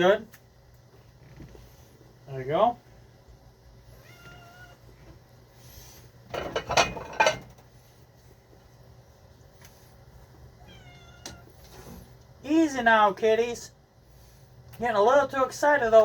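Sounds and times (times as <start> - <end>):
cats meowing: 3.8 - 5.0, 10.6 - 11.6.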